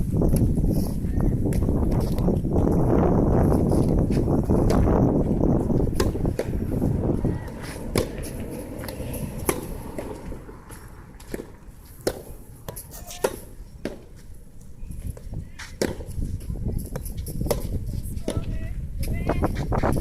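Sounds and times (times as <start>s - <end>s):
wind on microphone: 0.0s - 13.9s, 14.6s - 20.0s
ball bouncing: 5.7s - 14.2s
racket hitting ball: 5.7s - 14.2s, 15.7s - 16.2s, 16.9s - 18.4s.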